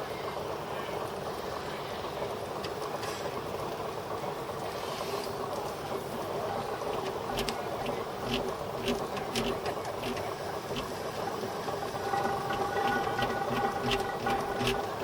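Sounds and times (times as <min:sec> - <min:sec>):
engine buzzing with low thumps: 0:05.6 - 0:15.0
steady whine: 0:05.6 - 0:15.0.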